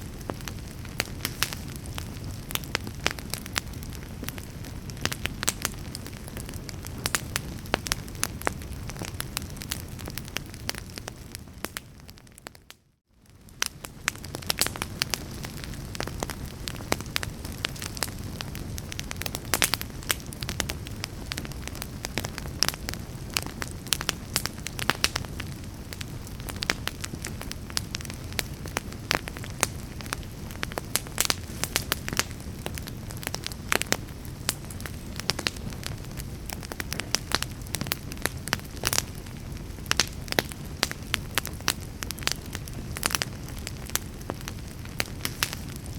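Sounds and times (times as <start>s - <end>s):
low rush of flame: 0.0s - 12.5s, 13.2s - 45.9s
fire crackling and popping: 0.0s - 45.9s.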